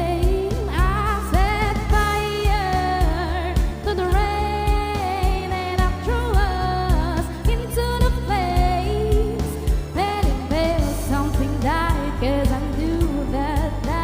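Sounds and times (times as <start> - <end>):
karaoke backing track: 0.0 - 14.0
woman singing pop ballad: 0.0 - 14.0.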